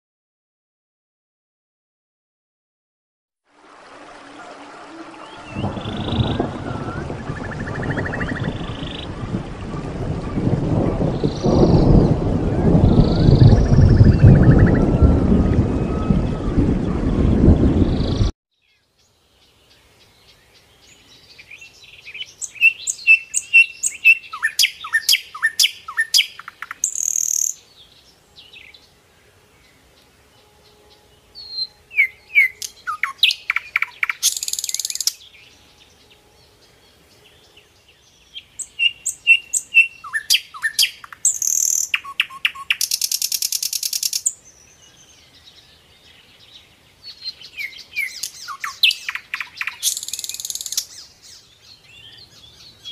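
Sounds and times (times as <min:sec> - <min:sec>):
bird chirping and whistling: 0:05.2 - 0:09.0, 0:22.4 - 0:27.5, 0:31.5 - 0:35.1, 0:38.6 - 0:44.3, 0:47.6 - 0:50.9.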